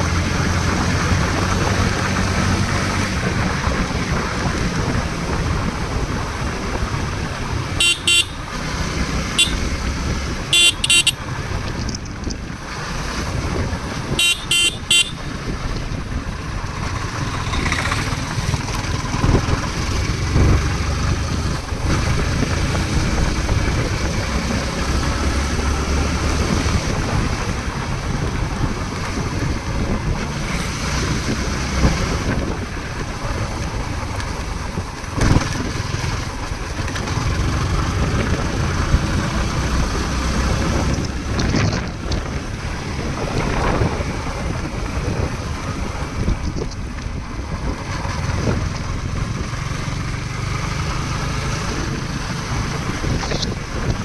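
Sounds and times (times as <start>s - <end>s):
motor vehicle rumble: 0.0s - 54.0s
quick horn beeps: 7.8s - 8.5s, 9.3s - 9.7s, 10.5s - 11.2s, 14.2s - 15.3s.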